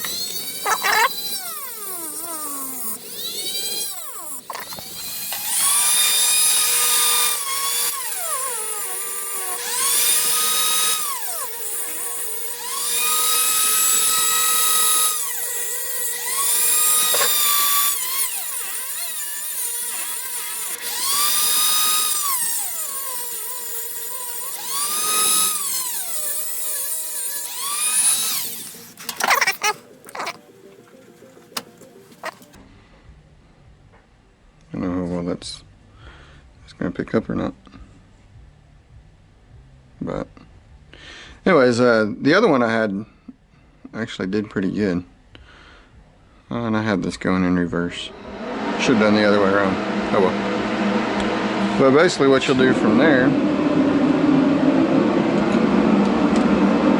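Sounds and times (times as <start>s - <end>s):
power tool motor whining: 0.0s - 30.4s, 48.1s - 56.9s.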